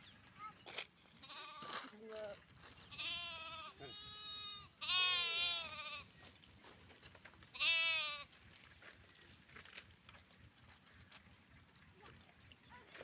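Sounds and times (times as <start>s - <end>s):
livestock bleating: 1.2s - 2.0s, 2.9s - 6.2s, 7.5s - 8.4s.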